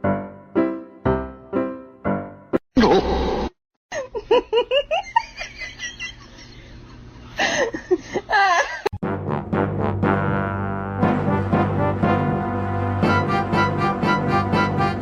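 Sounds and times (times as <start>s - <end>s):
music: 0.0s - 2.6s, 9.0s - 15.0s
person laughing and giggling: 2.8s - 3.2s, 3.9s - 9.0s.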